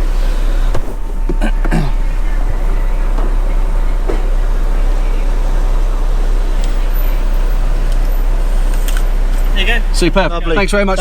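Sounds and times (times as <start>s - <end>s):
car engine idling: 0.0s - 11.0s
faint voices: 0.0s - 11.0s.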